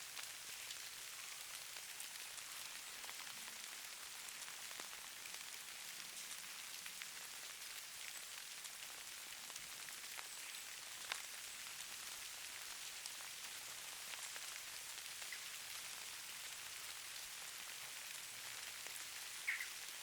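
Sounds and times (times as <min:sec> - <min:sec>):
soft hiss of falling snow: 0:00.0 - 0:20.0
snowflakes ticking: 0:18.3 - 0:20.0.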